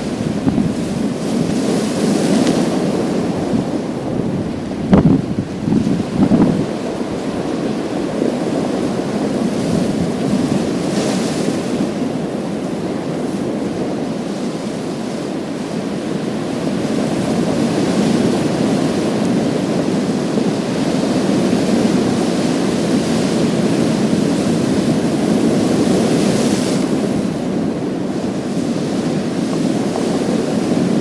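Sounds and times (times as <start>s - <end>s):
low surf rumble: 0.0s - 17.7s.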